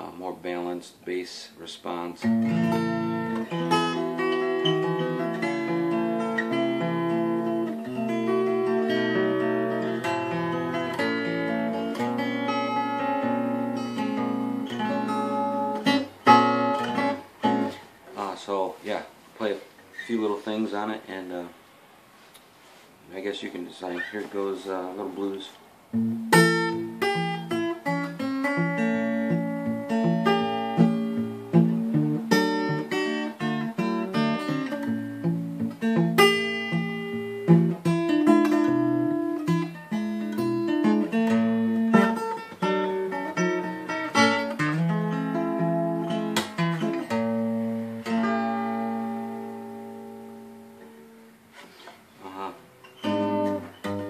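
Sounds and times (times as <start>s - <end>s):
fingerstyle acoustic guitar blues: 0.0s - 18.7s, 23.8s - 54.0s.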